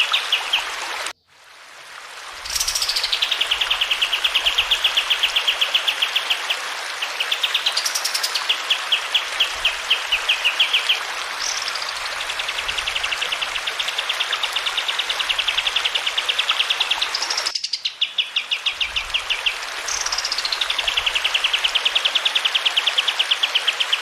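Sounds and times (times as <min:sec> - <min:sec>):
running water hiss: 0:00.0 - 0:24.0
songbird singing trills: 0:17.0 - 0:19.0.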